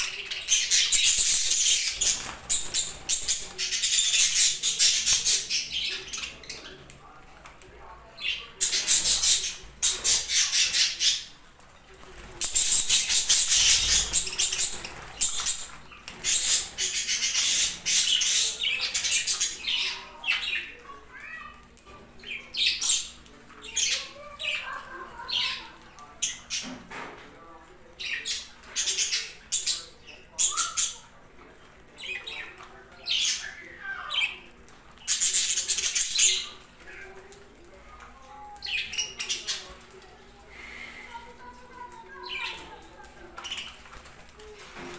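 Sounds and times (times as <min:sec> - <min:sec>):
budgerigars chattering and squawking: 0:00.0 - 0:06.7, 0:08.2 - 0:11.4, 0:12.4 - 0:20.7
wings fluttering: 0:01.4 - 0:04.0.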